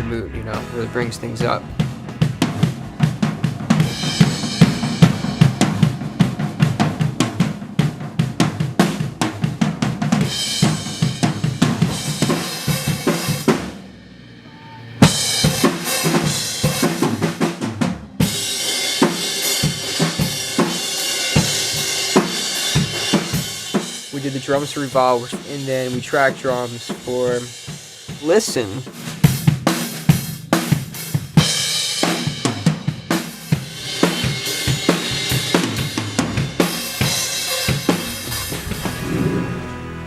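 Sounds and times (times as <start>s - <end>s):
drum kit playing a beat: 0.0s - 14.1s, 15.0s - 39.0s
cymbal wash: 1.8s - 23.6s.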